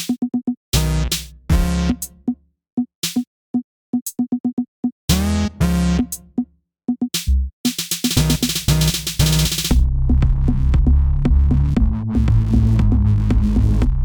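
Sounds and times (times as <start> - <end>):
drum machine hits: 0.0 - 2.4, 3.0 - 3.2, 6.0 - 14.0.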